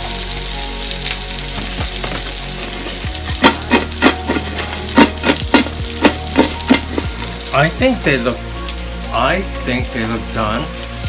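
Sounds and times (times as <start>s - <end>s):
music with held chords and bass: 0.0s - 11.0s.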